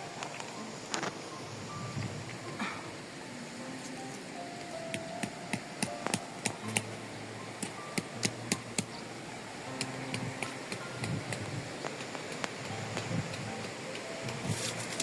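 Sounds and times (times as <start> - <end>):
faint background music: 0.0 - 15.0
sharp taps and clicks: 4.6 - 6.9, 7.6 - 9.0, 9.7 - 14.4.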